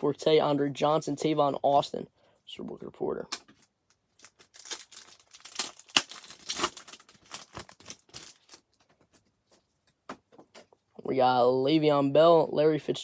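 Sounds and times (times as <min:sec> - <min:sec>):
cards and wrappers rustling: 0:03.4 - 0:09.7.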